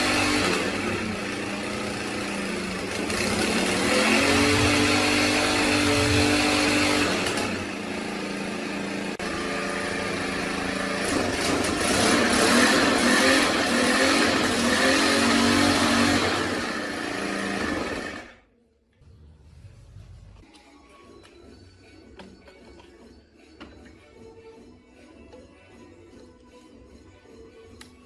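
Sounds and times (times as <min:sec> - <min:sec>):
water pump engine running: 0:00.0 - 0:18.4.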